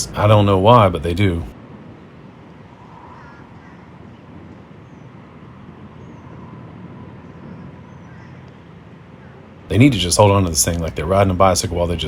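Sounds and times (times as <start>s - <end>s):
faint distant engine hum: 0.0s - 12.0s
wind: 0.0s - 12.0s
faint bird chirps: 2.8s - 9.5s.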